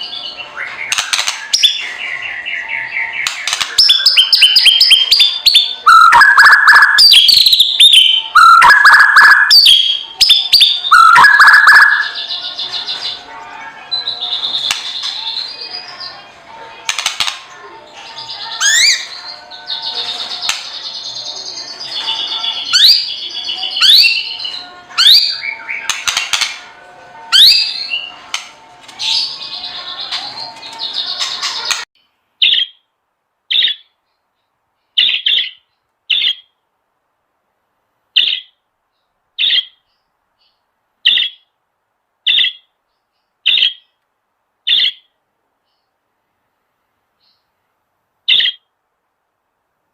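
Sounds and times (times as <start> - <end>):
birds chirping and whistling: 0.0 - 13.3, 13.9 - 16.2, 16.9 - 26.7, 27.3 - 32.8, 33.5 - 34.0, 34.9 - 36.5, 38.2 - 38.5, 39.4 - 40.0, 41.0 - 41.4, 42.3 - 42.7, 43.4 - 43.9, 44.7 - 45.1, 48.3 - 48.6.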